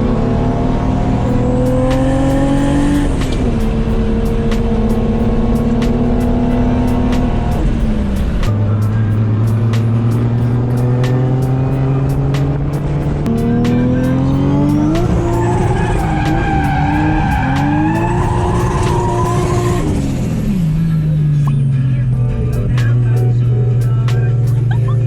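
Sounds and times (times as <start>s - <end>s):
car engine revving: 0.0s - 25.0s
music with a steady beat: 1.2s - 20.0s, 21.4s - 25.0s
tyres squealing: 1.2s - 20.0s.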